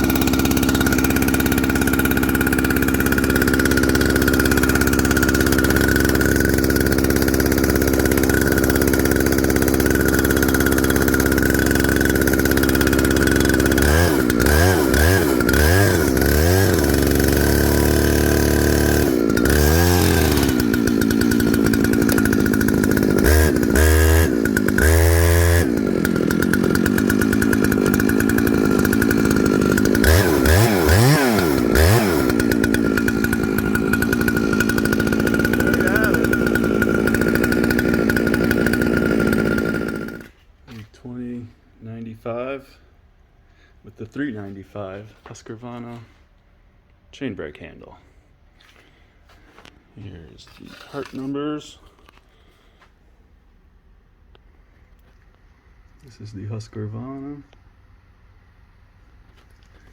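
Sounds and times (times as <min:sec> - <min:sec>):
chainsaw engine idling and revving: 0:00.0 - 0:41.0, 0:48.6 - 0:53.0, 0:59.3 - 0:59.9.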